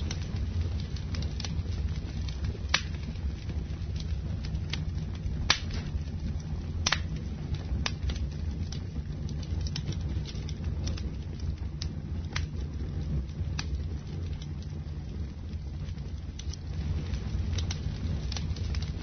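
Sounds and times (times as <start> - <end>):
campfire crackling: 0.0 - 19.0
fire popping: 0.0 - 19.0.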